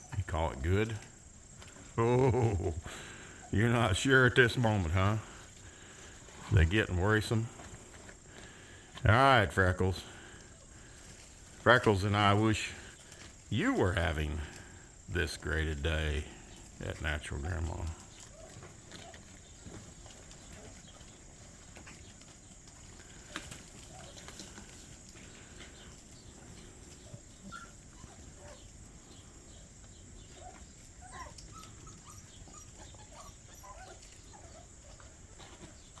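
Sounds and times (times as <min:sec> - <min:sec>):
crickets droning: 0:00.0 - 0:36.0
puppies squeaking and whimpering: 0:17.7 - 0:21.3, 0:27.0 - 0:28.7, 0:30.2 - 0:36.0.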